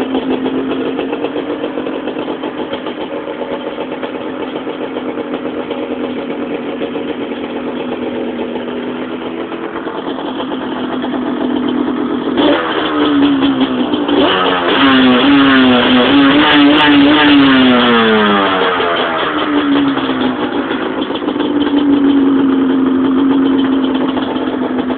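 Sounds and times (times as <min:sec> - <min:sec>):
two-stroke engine idling and revving: 0:00.0 - 0:24.9.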